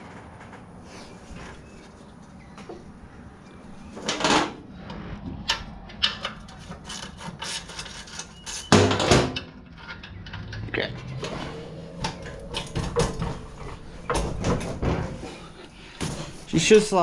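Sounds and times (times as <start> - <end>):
loud metal scrape: 4.0 - 16.4.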